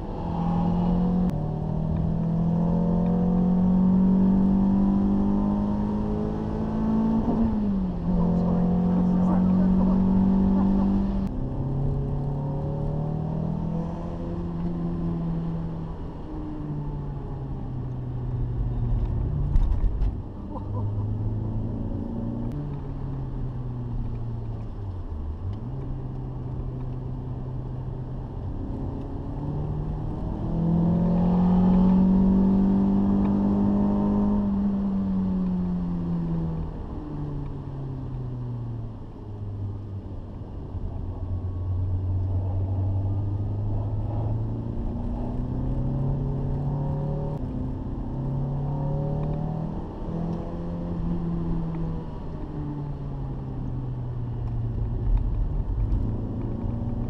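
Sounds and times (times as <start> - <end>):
car engine revving: 0.0 - 16.2, 16.8 - 37.0, 41.2 - 57.0.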